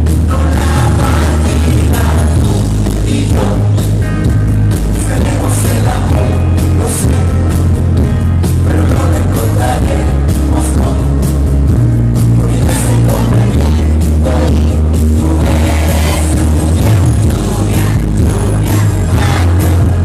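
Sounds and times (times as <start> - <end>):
live pop-rock band music: 0.0 - 20.0.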